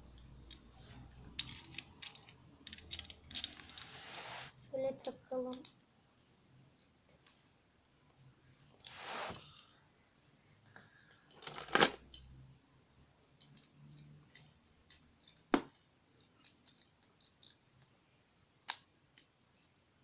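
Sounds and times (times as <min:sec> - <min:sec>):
plastic bricks clicking together: 0:01.3 - 0:03.9, 0:13.4 - 0:17.9.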